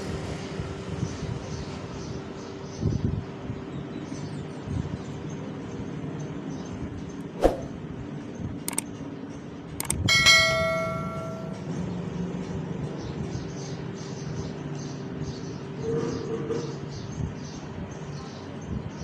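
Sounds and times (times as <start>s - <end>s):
sharp clicks: 8.6s - 8.9s, 9.8s - 10.1s
metal struck ringing: 10.1s - 11.7s.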